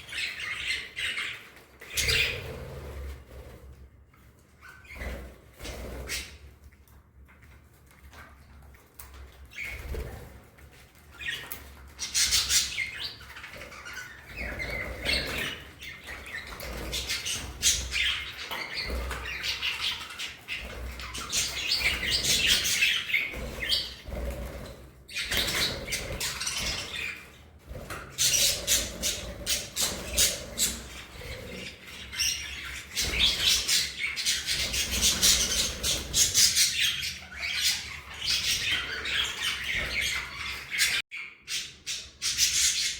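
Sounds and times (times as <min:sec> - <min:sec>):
budgerigars chattering and chirping: 0:00.0 - 0:02.6, 0:11.1 - 0:42.9.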